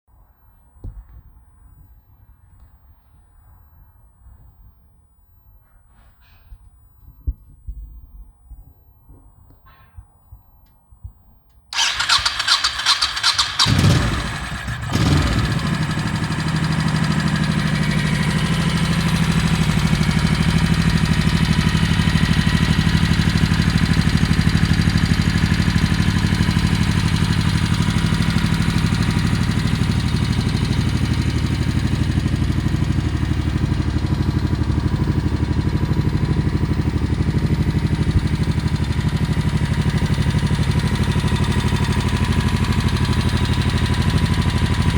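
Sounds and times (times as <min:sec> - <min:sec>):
motorcycle engine cranking on starter: 0:11.8 - 0:44.9
motorcycle engine idling: 0:11.8 - 0:44.9.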